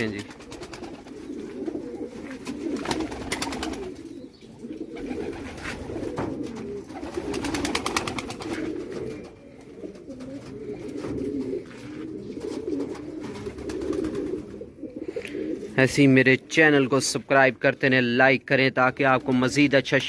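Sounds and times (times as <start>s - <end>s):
pigeons cooing: 0.0s - 16.1s.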